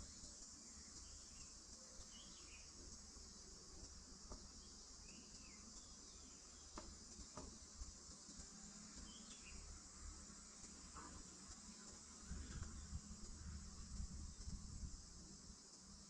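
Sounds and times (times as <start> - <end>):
soft bird chirps: 0.0 - 3.4, 4.3 - 7.5, 8.9 - 9.8
insect chorus: 0.0 - 16.0.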